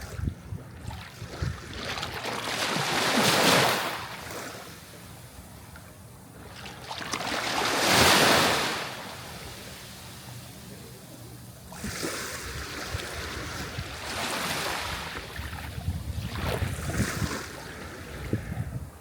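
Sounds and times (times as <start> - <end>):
sea waves washing onto shore: 6.5 - 15.7.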